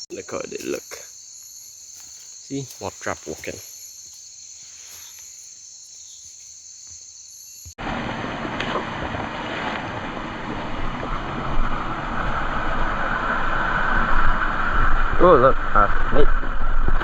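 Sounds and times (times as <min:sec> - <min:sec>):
night insects trilling: 0:00.0 - 0:07.8.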